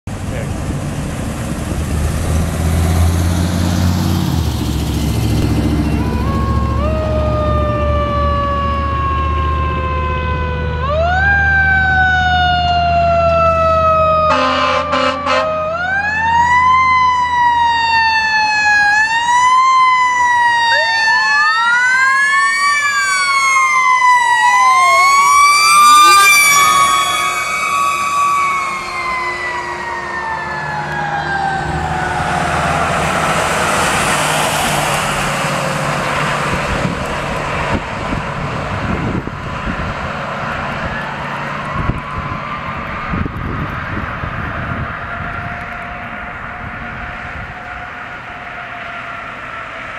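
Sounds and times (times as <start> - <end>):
diesel truck engine rushing by: 0.1 - 49.9
wailing sirens: 1.2 - 49.9
air horn blast: 14.2 - 15.6, 25.8 - 27.4.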